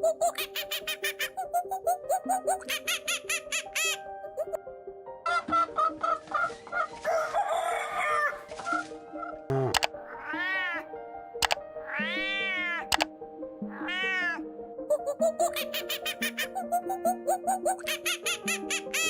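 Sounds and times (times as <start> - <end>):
background music: 0.0 - 19.0
cat meowing: 10.0 - 10.9, 11.8 - 12.9, 13.7 - 14.4.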